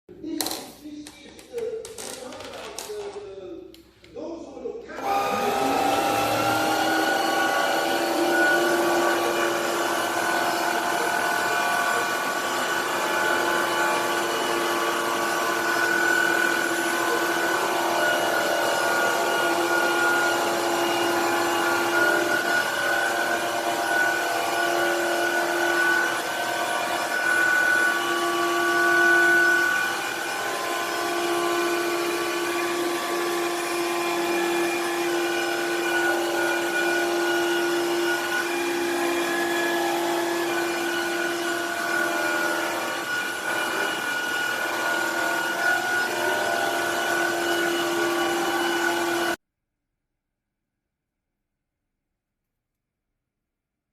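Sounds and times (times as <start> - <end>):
floor washer motor whine: 4.9 - 49.4.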